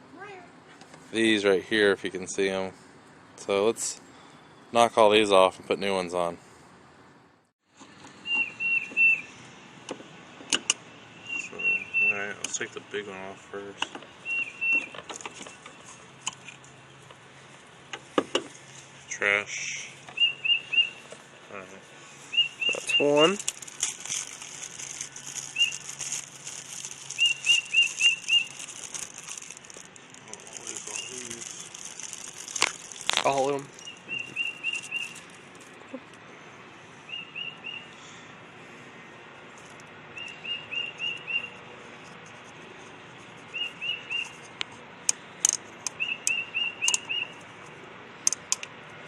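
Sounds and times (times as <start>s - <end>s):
bird chirping: 8.1s - 9.4s, 11.1s - 12.4s, 13.9s - 17.1s, 19.6s - 21.2s, 22.1s - 23.4s, 24.9s - 26.0s, 27.0s - 28.7s, 30.6s - 31.4s, 33.3s - 36.0s, 37.1s - 38.2s, 40.1s - 41.7s, 43.4s - 44.6s, 45.9s - 47.4s
sharp clicks: 44.2s - 47.1s, 48.2s - 48.8s.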